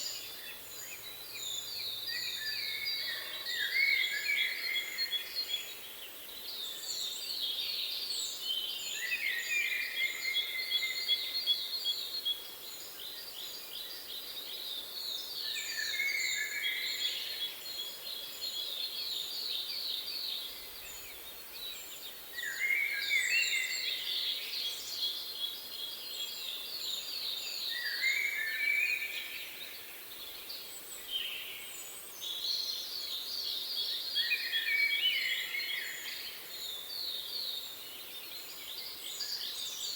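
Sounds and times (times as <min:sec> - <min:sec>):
faint steady hiss: 0:00.0 - 0:39.9
songbirds singing: 0:00.0 - 0:39.9.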